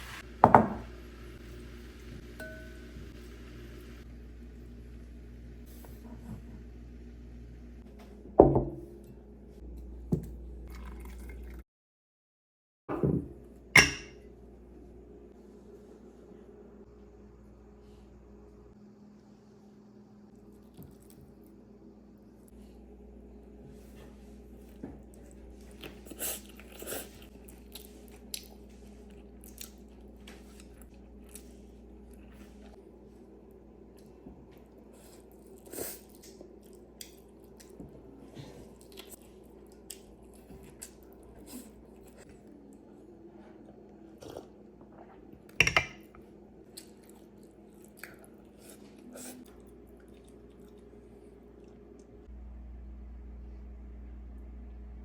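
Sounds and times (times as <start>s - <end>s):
low steady hum: 0.0s - 11.6s, 12.9s - 55.0s
low hum: 49.6s - 55.0s.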